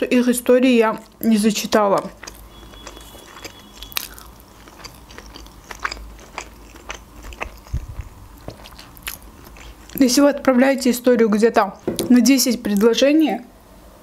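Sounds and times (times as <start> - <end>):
person chewing food: 0.9 - 10.1.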